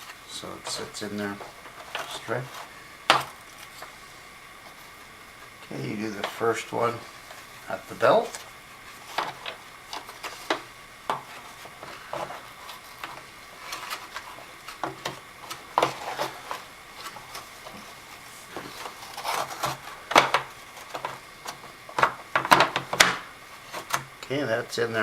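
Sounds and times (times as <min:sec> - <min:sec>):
plastic parts clicking and tapping: 0:20.1 - 0:23.2.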